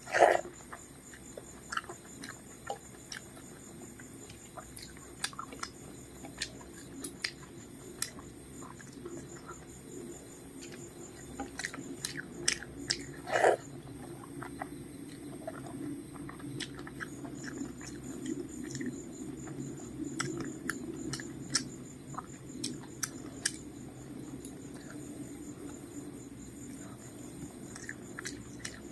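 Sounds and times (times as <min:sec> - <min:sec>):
chewing and biting food: 0:00.0 - 0:28.9
mouth clicks and smacks: 0:04.2 - 0:09.6, 0:10.6 - 0:23.7, 0:27.7 - 0:28.9.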